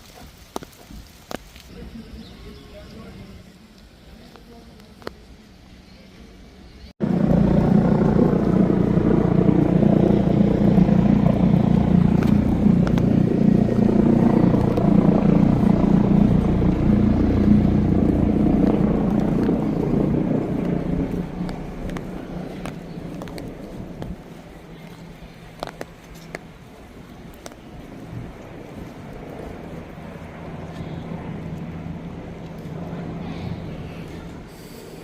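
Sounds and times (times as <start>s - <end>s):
vehicle engine humming: 7.0s - 35.0s.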